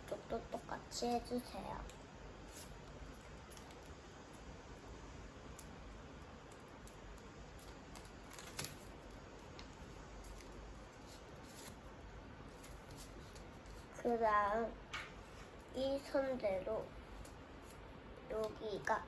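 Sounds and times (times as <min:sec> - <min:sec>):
paper folding and crackling: 0:01.0 - 0:04.5, 0:05.4 - 0:14.2.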